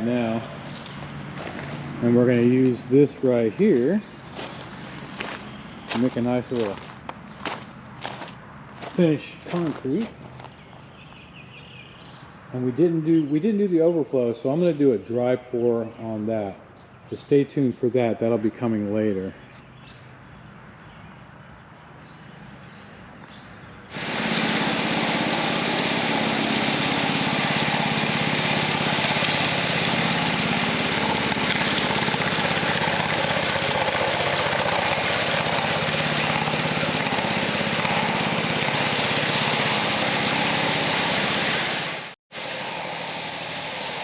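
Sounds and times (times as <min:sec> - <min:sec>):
small gasoline engine running: 0:23.9 - 0:44.0.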